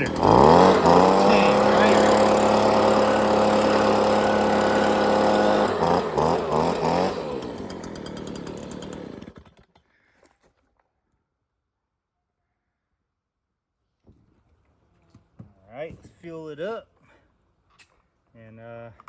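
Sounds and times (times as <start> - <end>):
chainsaw running: 0.0 - 9.8.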